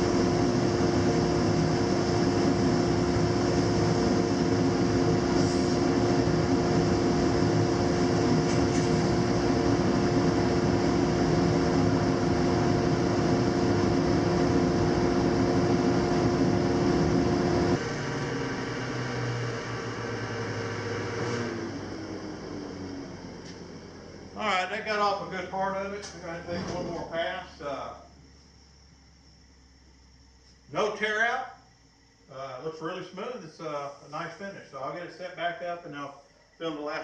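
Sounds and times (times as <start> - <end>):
planer cutting wood: 0.0 - 22.8.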